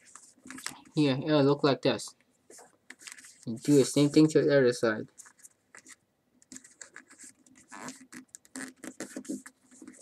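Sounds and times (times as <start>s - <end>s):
paper folding and crinkling: 2.5s - 4.3s, 5.2s - 10.0s.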